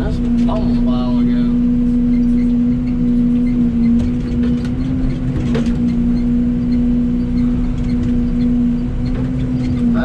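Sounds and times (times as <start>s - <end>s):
excavator engine droning: 0.0s - 10.0s
faint knocks and clanks: 2.2s - 9.9s.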